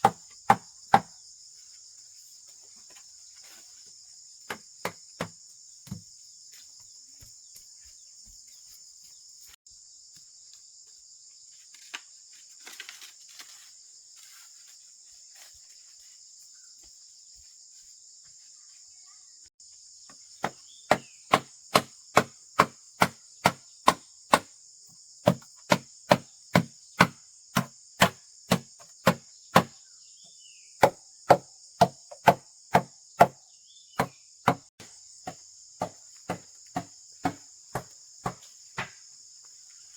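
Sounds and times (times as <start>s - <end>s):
tool striking wood: 0.0s - 1.1s, 20.4s - 24.5s, 25.3s - 29.7s, 30.8s - 33.4s, 34.0s - 34.8s, 35.8s - 38.9s
insects droning: 0.0s - 39.9s.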